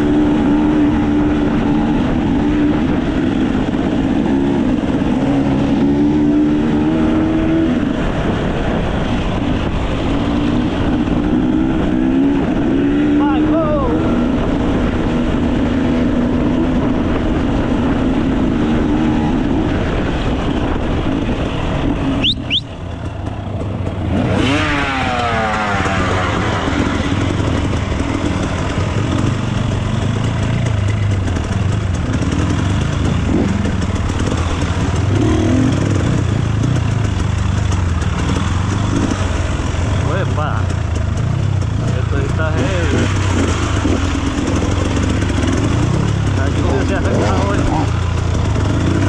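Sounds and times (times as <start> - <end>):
dirt bike engine revving: 0.0 - 49.0.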